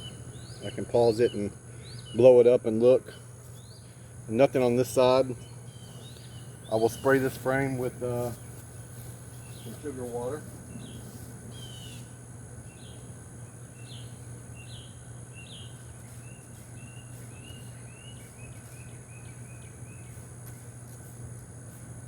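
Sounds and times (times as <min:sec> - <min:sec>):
bird chirping: 0:00.0 - 0:02.4, 0:03.1 - 0:08.6, 0:09.3 - 0:20.2
low steady hum: 0:00.0 - 0:22.0.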